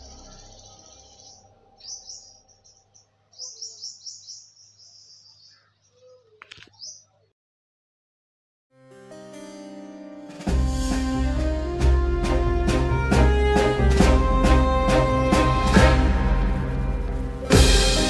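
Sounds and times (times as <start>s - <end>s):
small birds chirping: 0.0s - 7.3s.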